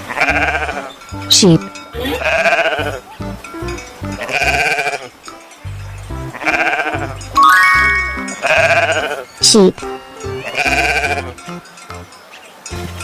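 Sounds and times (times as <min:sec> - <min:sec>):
background music: 0:05.7 - 0:11.5.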